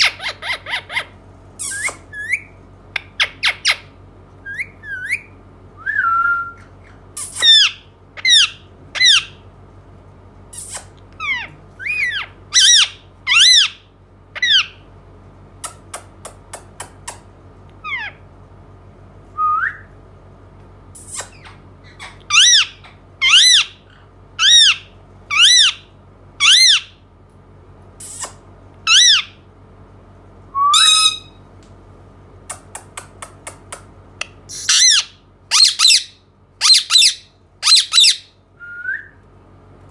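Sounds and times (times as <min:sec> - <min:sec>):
parakeet squawking: 0:00.0 - 0:03.9, 0:07.1 - 0:09.4, 0:10.5 - 0:14.8, 0:17.8 - 0:18.2, 0:21.0 - 0:27.0, 0:28.0 - 0:29.4, 0:30.7 - 0:31.4, 0:34.5 - 0:38.4.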